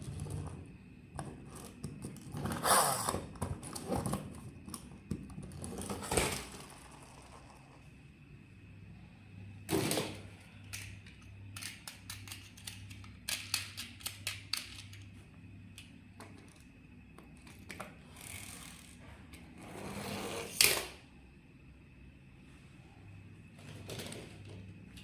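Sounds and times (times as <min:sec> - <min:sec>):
plastic toy clicking and knocking: 0:10.7 - 0:15.1.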